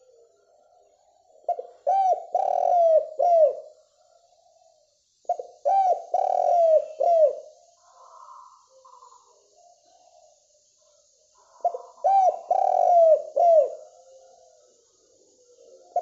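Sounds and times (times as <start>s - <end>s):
dove cooing: 1.3s - 3.8s, 5.3s - 10.2s, 11.4s - 14.8s, 15.4s - 16.0s.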